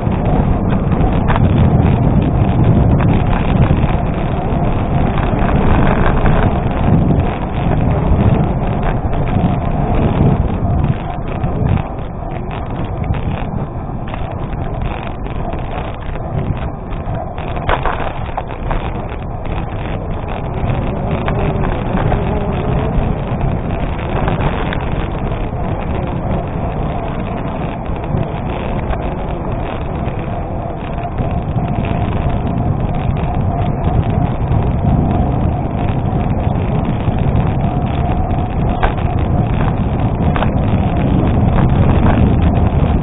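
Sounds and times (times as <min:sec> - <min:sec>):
wind rumble on microphone: 0:00.0 - 0:43.0.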